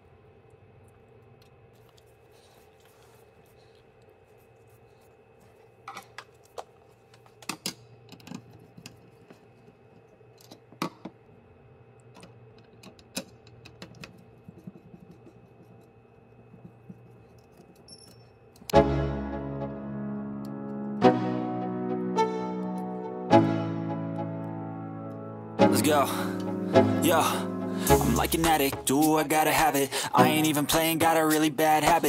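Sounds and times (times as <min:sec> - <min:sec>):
faint steady hum: 0:00.0 - 0:18.8, 0:24.2 - 0:32.0
tools clicking and knocking: 0:07.4 - 0:09.4, 0:12.2 - 0:15.8
music: 0:18.7 - 0:32.0.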